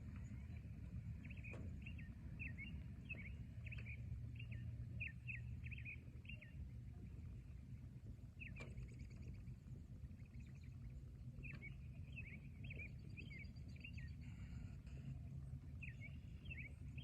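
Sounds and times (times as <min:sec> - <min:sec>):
low outdoor rumble: 0:00.0 - 0:17.0
bird chirping: 0:01.2 - 0:06.6, 0:10.2 - 0:17.0.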